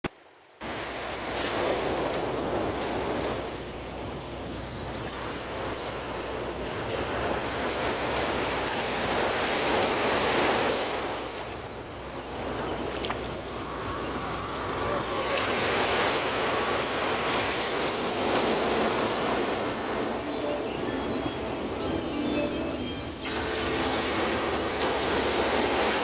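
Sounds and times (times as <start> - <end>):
wind: 0.0 - 26.0
surf rushing on shore: 13.3 - 26.0.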